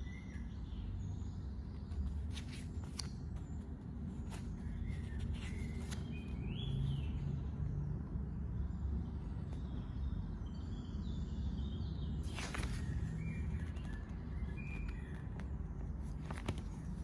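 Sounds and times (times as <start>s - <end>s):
low background hum: 0.0s - 17.0s
brief rustling: 12.3s - 13.1s, 16.2s - 17.0s.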